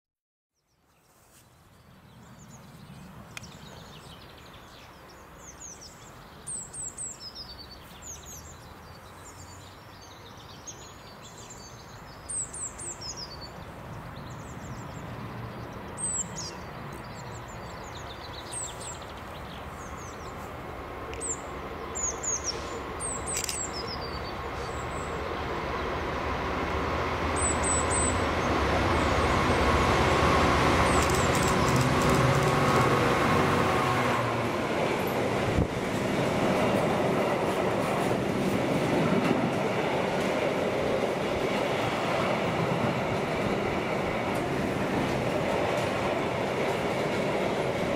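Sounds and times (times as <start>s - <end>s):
songbirds chirping: 0.6s - 29.6s, 30.7s - 32.6s
diesel locomotive approaching: 2.0s - 47.9s.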